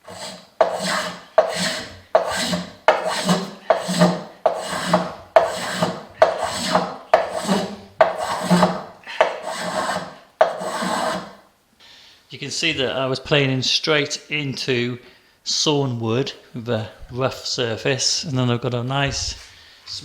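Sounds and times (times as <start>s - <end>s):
hand plane cutting wood: 0.0s - 11.4s.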